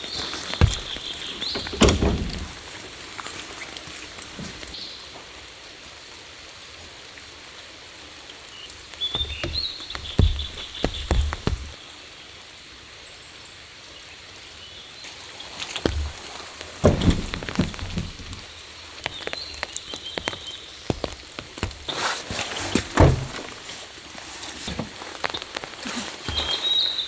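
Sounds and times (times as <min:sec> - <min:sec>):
steady rain falling: 0:00.0 - 0:27.0
knocks and thumps: 0:00.3 - 0:02.6, 0:09.2 - 0:11.8, 0:15.9 - 0:18.4.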